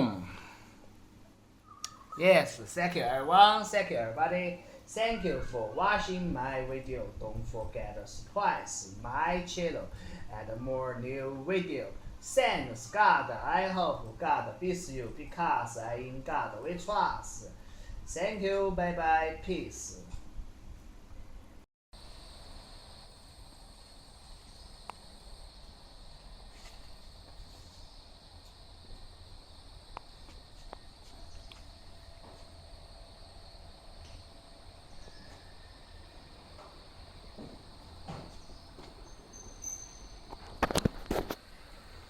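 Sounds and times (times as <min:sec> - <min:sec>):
high-pitched insect chorus: 0:22.0 - 0:42.0.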